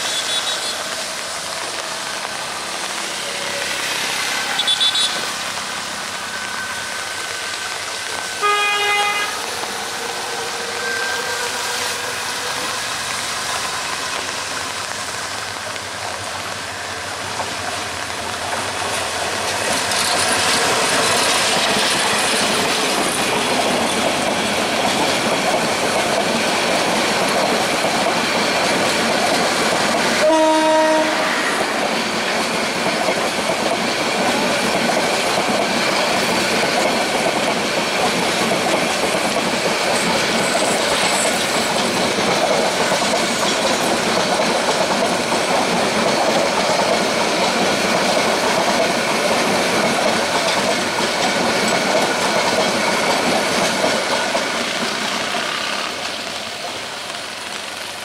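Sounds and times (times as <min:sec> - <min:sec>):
train horn: 0:00.0 - 0:01.0, 0:04.4 - 0:05.4, 0:08.4 - 0:09.5, 0:10.4 - 0:12.7, 0:30.2 - 0:31.8
train wheels clattering on rails: 0:00.0 - 0:58.0.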